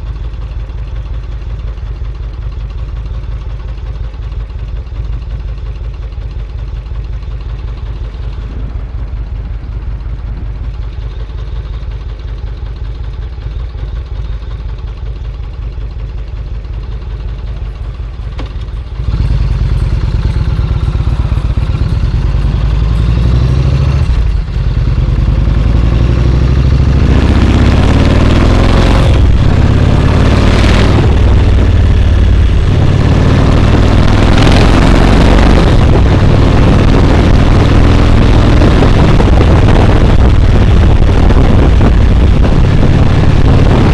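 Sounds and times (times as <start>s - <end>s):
motorcycle engine: 0.0s - 43.9s
rushing noise: 19.0s - 43.9s.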